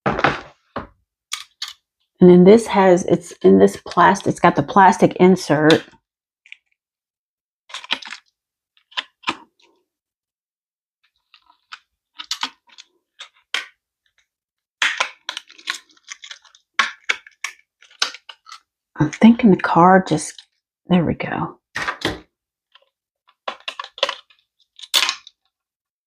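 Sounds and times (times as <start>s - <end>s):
plastic packaging clicking and crackling: 7.7s - 9.8s, 11.2s - 18.7s, 22.8s - 25.5s.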